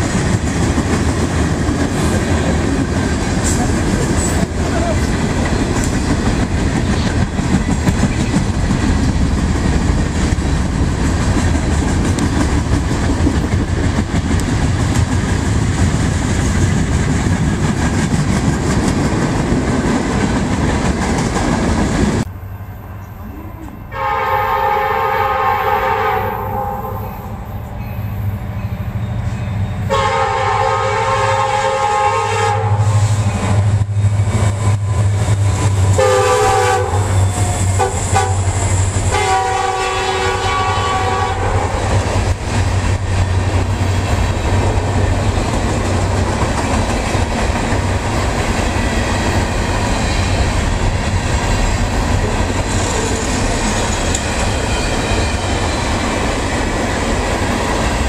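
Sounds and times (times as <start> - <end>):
freight train rumbling past: 0.0 - 58.0
train air horn blasts: 23.9 - 27.6, 29.9 - 33.6, 36.0 - 41.9.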